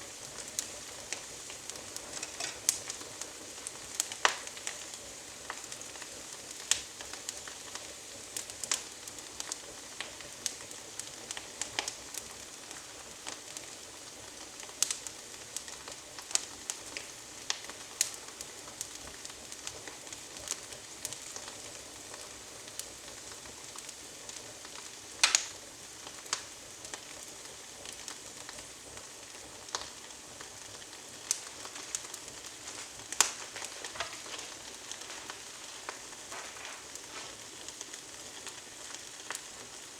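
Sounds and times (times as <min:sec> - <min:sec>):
twig fire crackling and popping: 0:00.0 - 0:39.9.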